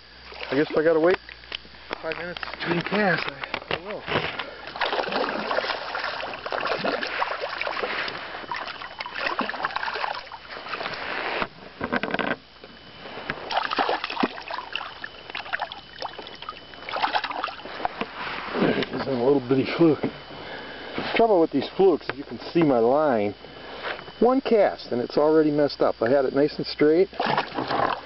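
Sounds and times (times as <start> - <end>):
water lapping against boat hull: 0.1 - 19.2, 27.0 - 28.0.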